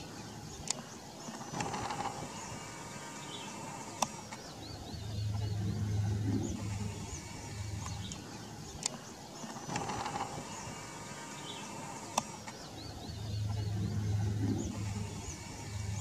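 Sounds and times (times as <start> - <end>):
small birds chirping: 0.0 - 16.0
steady low hum: 0.0 - 16.0
sharp clicks: 0.5 - 2.3, 3.9 - 4.5, 6.3 - 10.7, 12.0 - 12.8.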